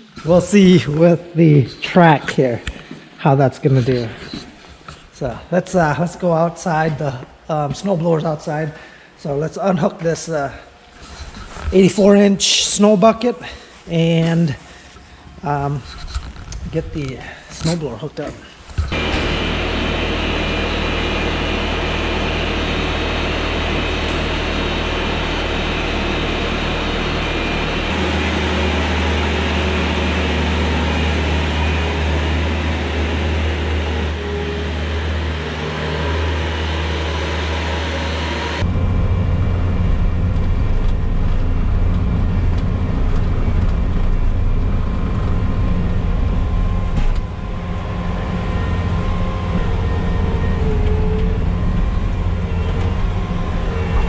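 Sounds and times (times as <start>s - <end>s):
diesel engine running: 18.7s - 54.0s.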